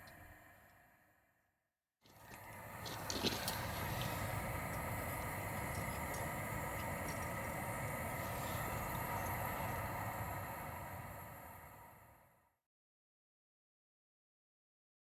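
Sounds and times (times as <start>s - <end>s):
train rumbling past: 2.2s - 12.3s
faint even hum: 2.2s - 12.4s.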